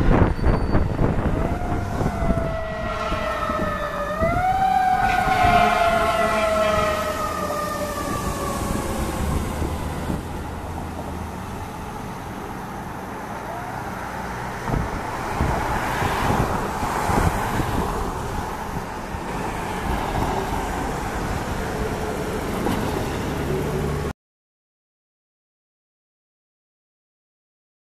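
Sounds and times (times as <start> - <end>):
engine and road traffic: 0.0 - 24.2
fire engine siren winding down: 0.8 - 10.6.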